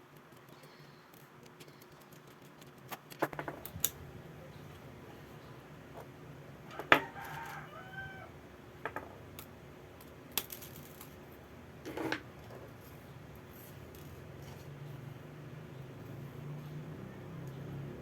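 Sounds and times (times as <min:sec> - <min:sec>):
small clicks and taps: 0:00.0 - 0:04.0
low steady hum: 0:03.3 - 0:18.0
rooster crowing: 0:06.7 - 0:08.4.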